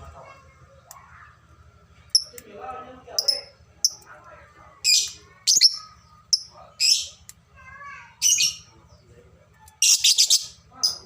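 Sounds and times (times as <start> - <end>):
birds chirping shrilly: 4.8 - 7.3, 8.1 - 8.8, 9.8 - 11.0.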